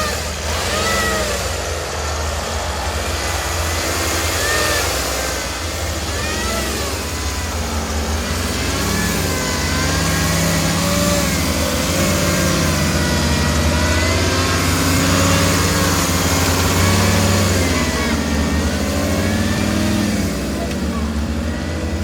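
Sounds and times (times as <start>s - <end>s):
engine revving under load: 0.0s - 22.0s.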